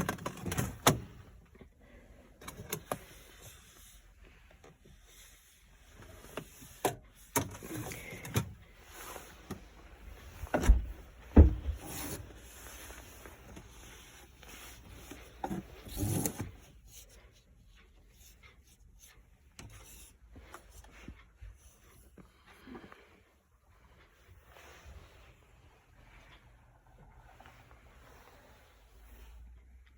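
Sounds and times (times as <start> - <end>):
knocks clunks and rubbing: 9.3 - 14.0
heavy thumps: 10.3 - 12.1.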